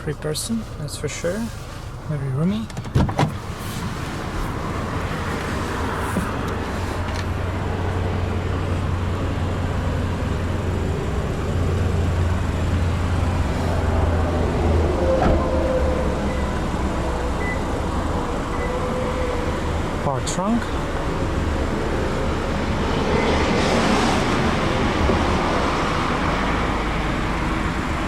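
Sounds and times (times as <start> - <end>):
low vehicle hum and road noise: 0.0 - 28.0
car door shutting: 2.6 - 4.0, 5.4 - 7.3, 15.0 - 15.7.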